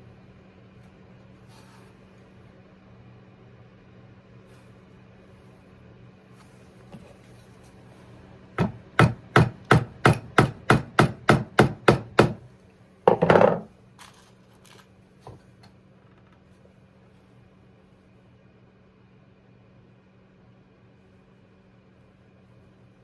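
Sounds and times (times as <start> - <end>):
tapping on wood: 8.6 - 12.4.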